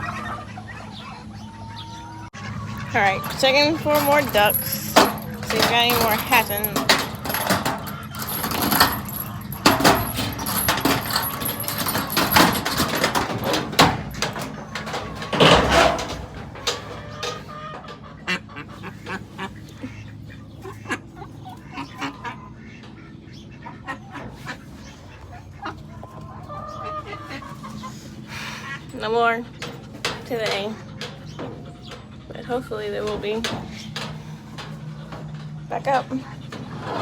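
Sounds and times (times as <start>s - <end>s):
ducks quacking: 0.0s - 4.0s, 16.6s - 37.0s
geese honking: 0.0s - 6.8s, 14.4s - 37.0s
rustling: 3.1s - 17.5s.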